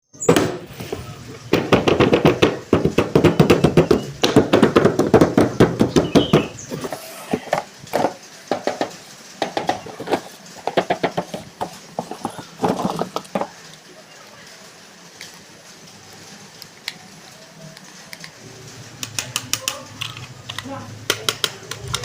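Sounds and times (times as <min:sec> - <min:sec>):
plastic packaging clicks and taps: 0:19.1 - 0:22.0.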